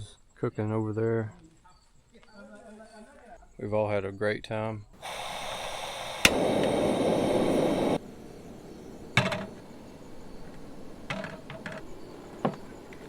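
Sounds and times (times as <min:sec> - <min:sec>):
loud steady hiss: 0:05.0 - 0:13.0.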